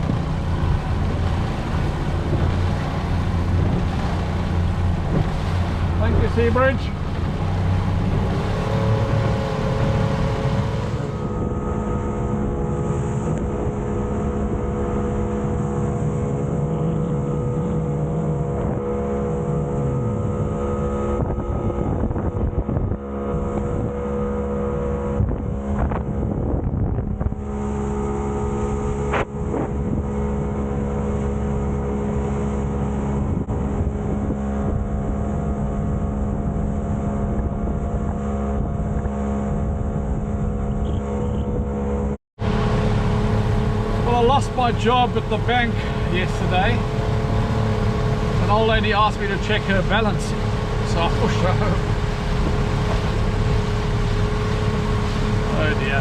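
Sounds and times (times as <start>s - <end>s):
outboard motor running: 0.0s - 56.0s
wind on microphone: 0.0s - 56.0s.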